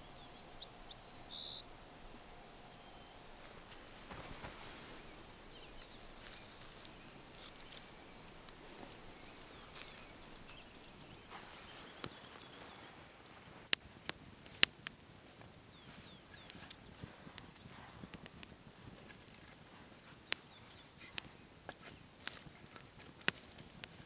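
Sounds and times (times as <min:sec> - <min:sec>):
faint ticks: 0:00.0 - 0:12.7
sharp clicks: 0:22.2 - 0:24.0.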